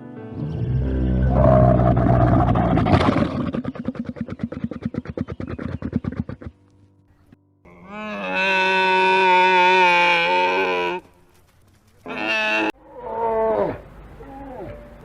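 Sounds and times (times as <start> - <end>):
animal calls: 1.4 - 6.6.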